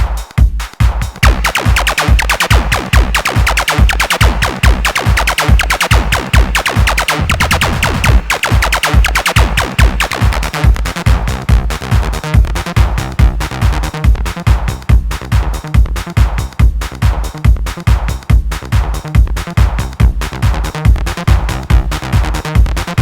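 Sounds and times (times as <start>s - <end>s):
hi-hats: 0.0s - 23.0s
kick drum beat: 0.0s - 23.0s
synth lines: 1.2s - 10.5s
techno music: 1.2s - 23.0s.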